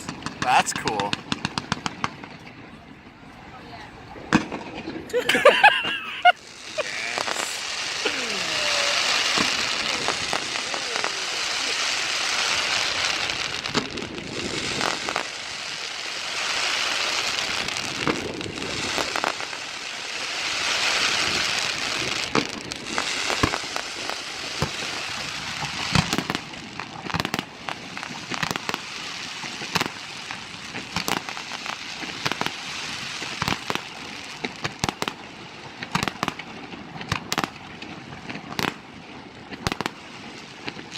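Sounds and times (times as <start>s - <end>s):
fireworks crackling: 0.0s - 3.4s, 4.0s - 40.9s
fireworks shells bursting: 4.3s - 33.8s.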